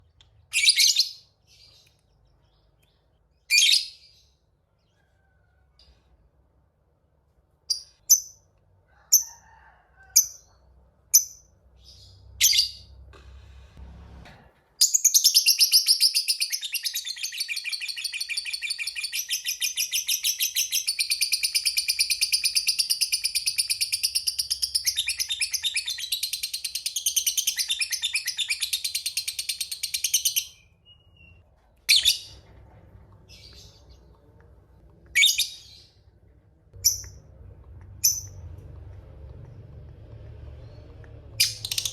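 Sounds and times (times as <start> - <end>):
lovebird chirping and trilling: 0.5 - 1.8, 3.5 - 4.2, 11.2 - 12.9, 14.8 - 32.4, 35.1 - 36.0, 36.8 - 37.2, 38.0 - 38.4, 40.5 - 41.9.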